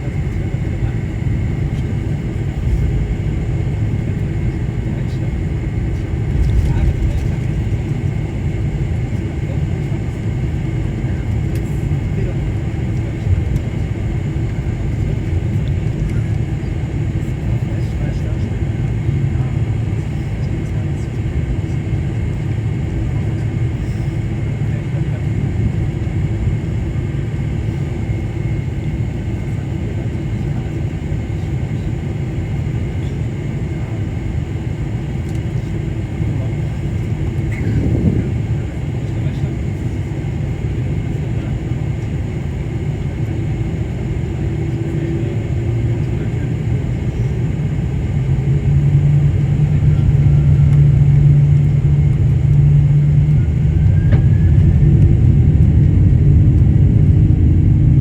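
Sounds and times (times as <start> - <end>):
airliner engines rumbling: 0.0 - 58.0.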